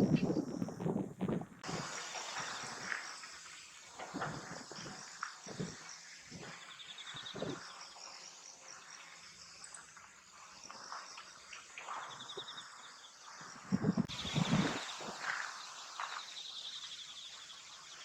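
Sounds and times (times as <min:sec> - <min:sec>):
soft low thumps: 0:00.0 - 0:01.7
insects chirring: 0:00.0 - 0:18.0.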